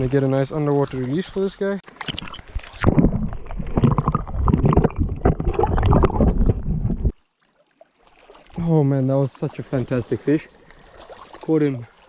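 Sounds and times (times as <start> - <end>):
muffled underwater sloshing: 0.0 - 12.0.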